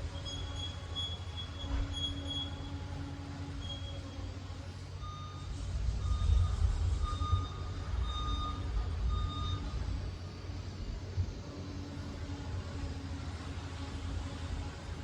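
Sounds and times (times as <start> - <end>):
back-up alarm beeps: 5.0 - 10.0.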